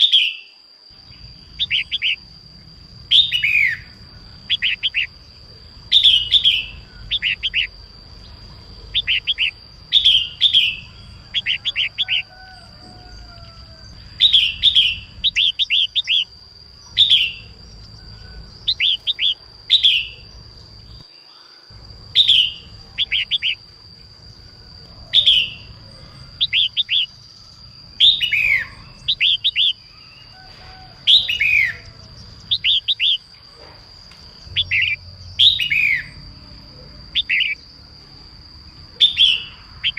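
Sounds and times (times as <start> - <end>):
bulbul chirping: 5.9 - 7.8, 8.9 - 12.3, 22.1 - 23.6.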